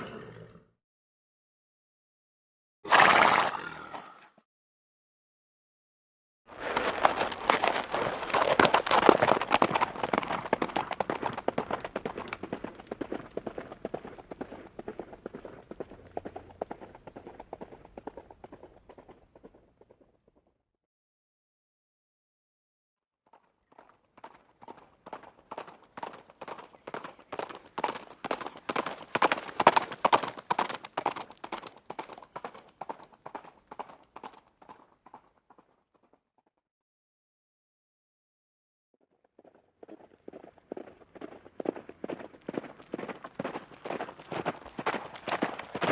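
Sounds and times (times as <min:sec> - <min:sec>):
horses galloping: 0:06.5 - 0:20.5, 0:23.3 - 0:36.2, 0:39.2 - 0:45.9.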